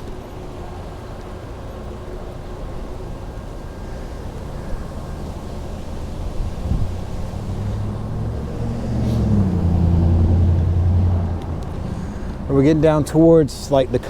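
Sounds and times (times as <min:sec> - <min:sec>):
bicycle road noise: 0:00.0 - 0:14.0
wind on microphone: 0:05.8 - 0:12.5.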